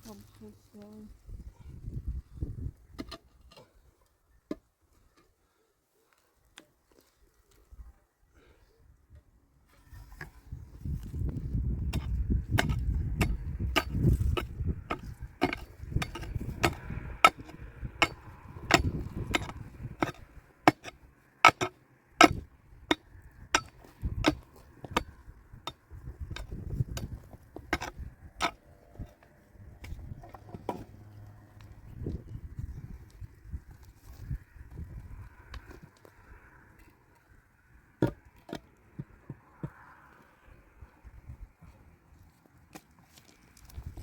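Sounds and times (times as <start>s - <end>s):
hand tool striking: 11.9s - 29.2s.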